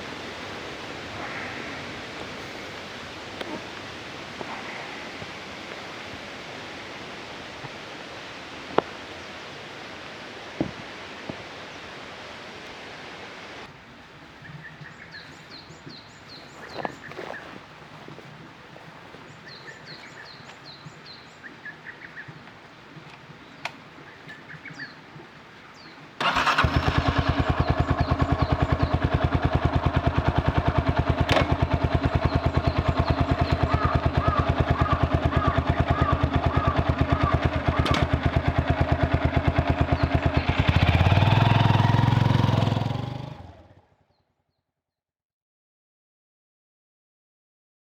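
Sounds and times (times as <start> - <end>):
motorcycle engine idling: 0.0 - 6.0, 18.8 - 25.0, 25.7 - 44.2
birds chirping: 0.0 - 6.4, 13.8 - 44.2.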